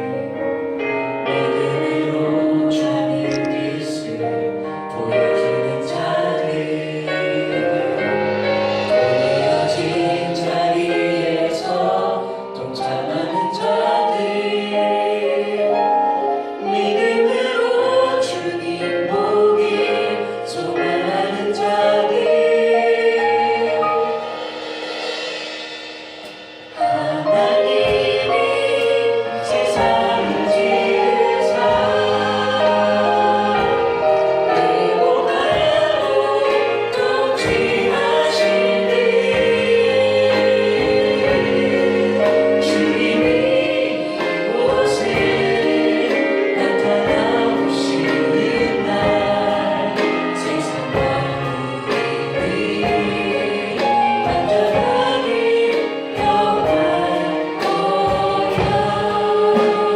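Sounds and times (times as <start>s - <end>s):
choir singing gospel song: 0.0s - 59.9s
instrumental accompaniment: 0.0s - 59.9s
cymbal strokes: 23.6s - 30.4s.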